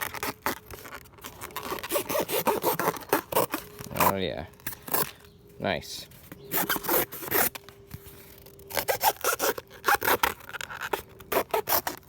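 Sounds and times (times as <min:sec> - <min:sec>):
blade sawing through cardboard: 0:00.0 - 0:05.1, 0:06.4 - 0:07.6, 0:08.7 - 0:12.0.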